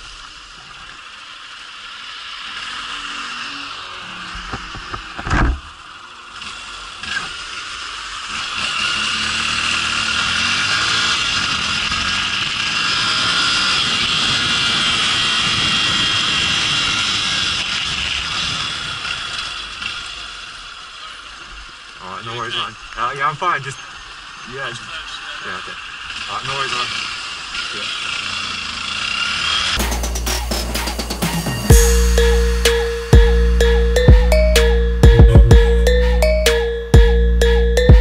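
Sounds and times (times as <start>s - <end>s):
motorcycle engine running: 26.9s - 34.4s.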